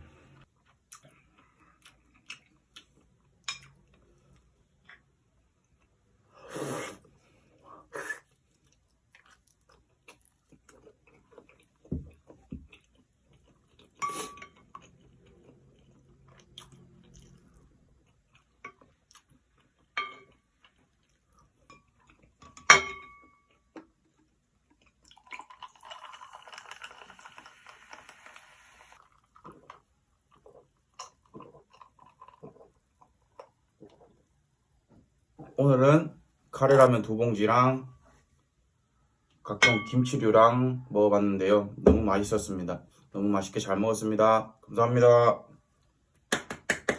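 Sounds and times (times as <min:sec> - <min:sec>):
chewing and crunching food: 0:00.4 - 0:06.3, 0:07.2 - 0:22.6, 0:23.2 - 0:27.9, 0:29.0 - 0:35.2.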